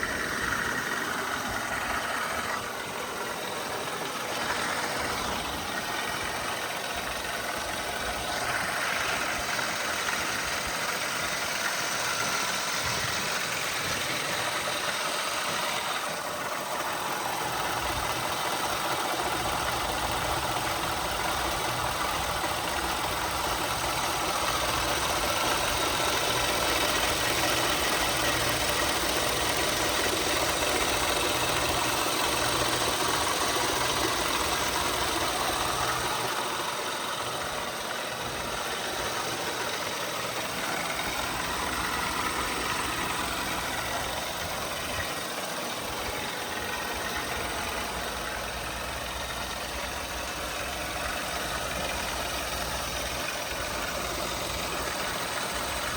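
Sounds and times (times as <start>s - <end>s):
truck engine idling: 0.0s - 55.9s.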